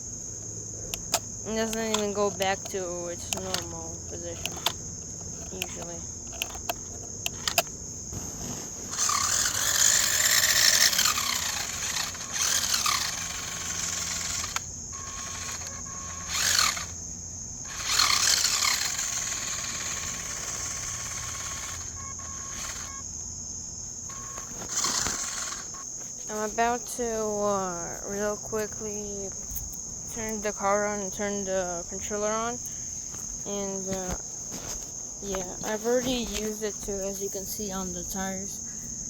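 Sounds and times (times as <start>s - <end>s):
crickets chirping: 0.0s - 39.0s
toy car electric motor whirring: 0.9s - 17.0s, 17.6s - 23.1s, 23.9s - 38.4s.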